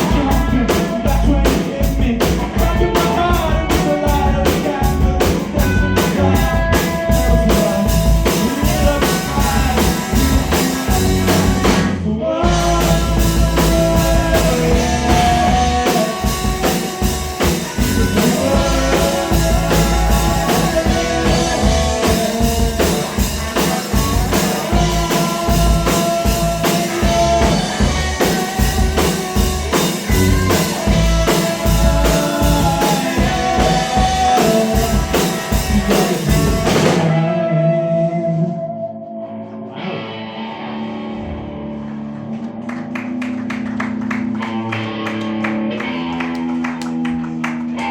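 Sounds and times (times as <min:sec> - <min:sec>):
drum kit beat: 0:00.0 - 0:37.3
rock band instrumental: 0:00.0 - 0:47.9.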